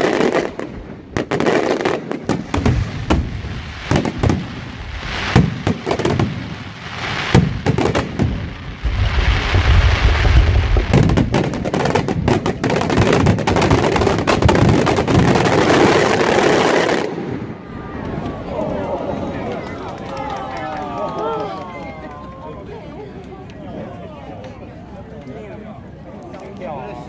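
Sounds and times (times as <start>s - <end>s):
fireworks bangs and crackling: 0.0s - 18.4s.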